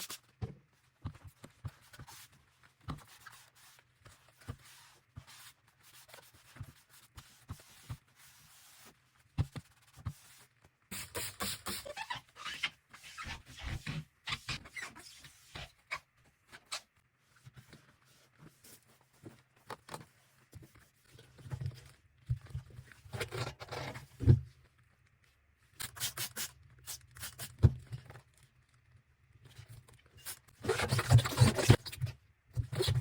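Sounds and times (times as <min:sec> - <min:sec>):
scraping and rubbing rubber seal: 0:30.2 - 0:33.0.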